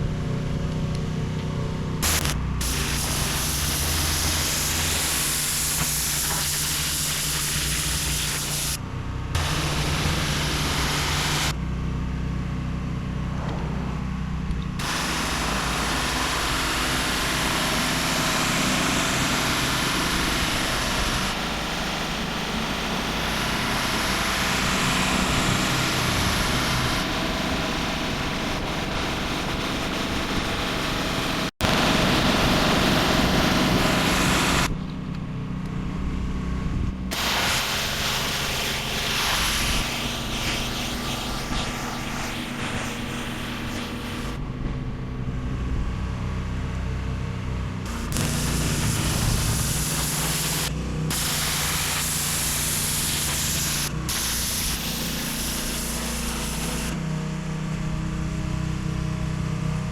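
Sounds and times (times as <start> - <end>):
pressure washer engine humming: 1.9 - 11.6, 14.8 - 34.7, 37.1 - 44.4, 47.9 - 57.1
water jet hissing: 2.0 - 8.8, 9.4 - 11.6, 14.8 - 29.3, 31.3 - 34.7, 37.1 - 44.4, 47.9 - 57.0.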